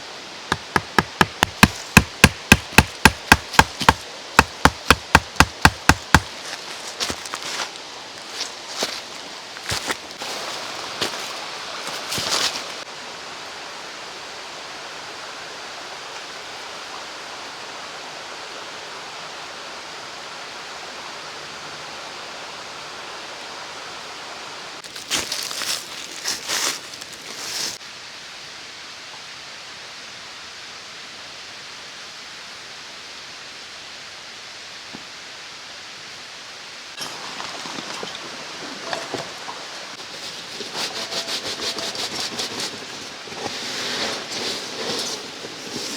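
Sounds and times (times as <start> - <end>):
mountain stream flowing: 0.0 - 26.0, 34.8 - 45.8
short rustles and knocks: 37.0 - 45.9.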